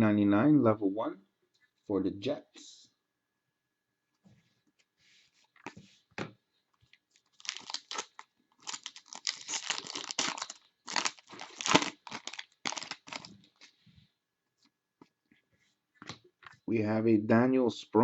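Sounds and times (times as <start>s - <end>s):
foil wrapper crinkling and tearing: 7.1s - 13.6s.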